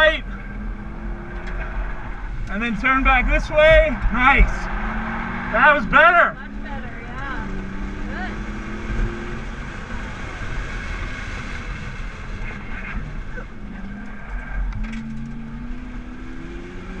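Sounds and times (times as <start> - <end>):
car engine revving: 0.0 - 17.0
road and wind noise: 0.0 - 17.0.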